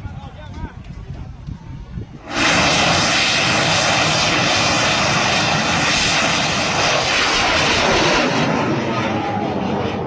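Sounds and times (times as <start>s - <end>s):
rocket motor rushing roar: 2.2s - 10.0s.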